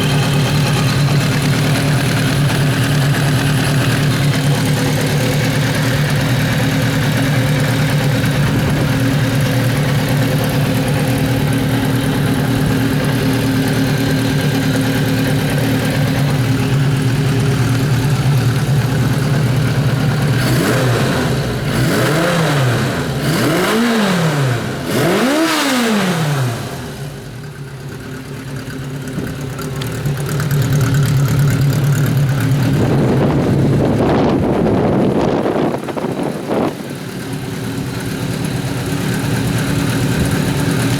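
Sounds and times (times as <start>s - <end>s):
engine revving: 0.0s - 27.4s
motorcycle engine idling: 0.0s - 40.9s.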